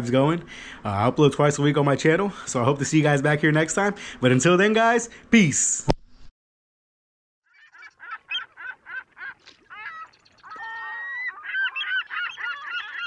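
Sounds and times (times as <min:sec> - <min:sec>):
honking bird calls: 0:07.5 - 0:13.0.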